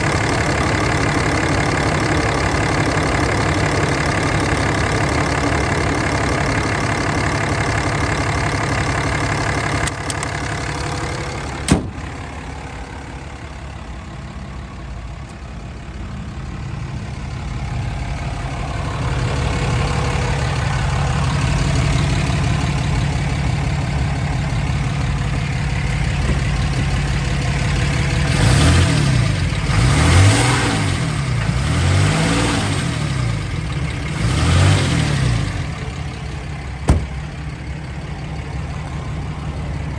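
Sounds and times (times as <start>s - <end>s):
diesel engine idling and revving: 0.0s - 39.9s
sharp knock: 36.9s - 37.2s.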